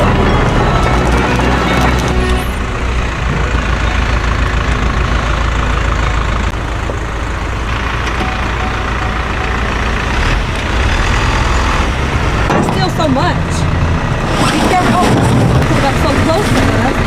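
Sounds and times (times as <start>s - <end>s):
large vehicle engine running: 0.0s - 17.0s.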